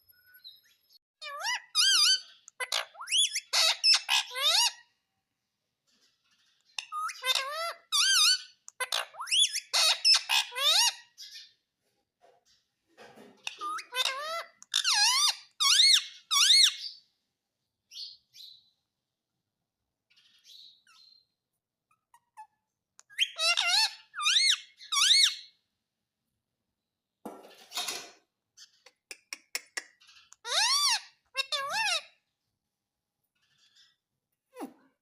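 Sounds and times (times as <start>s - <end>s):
parakeet shrill calls: 1.2s - 4.8s, 6.7s - 11.5s, 13.5s - 17.0s, 21.9s - 25.6s, 30.0s - 32.2s.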